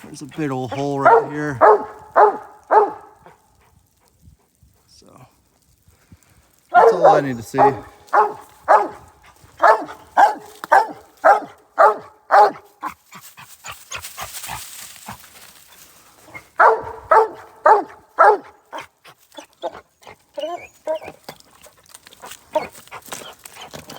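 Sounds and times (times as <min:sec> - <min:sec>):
dog barking loudly: 0:00.7 - 0:03.4, 0:06.7 - 0:13.0, 0:16.3 - 0:19.8, 0:22.5 - 0:22.7.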